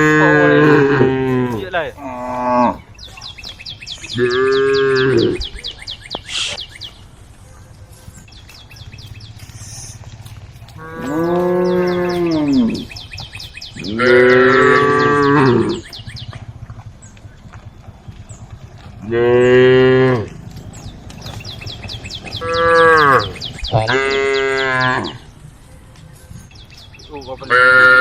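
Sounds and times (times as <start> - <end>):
cows mooing: 0.0 - 2.9, 4.0 - 5.6, 9.5 - 16.9, 18.8 - 25.4, 27.3 - 28.0.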